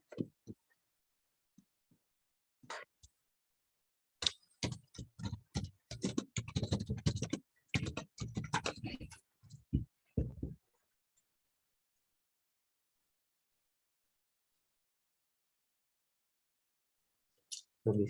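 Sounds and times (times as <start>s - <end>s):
keyboard typing: 4.2s - 9.2s.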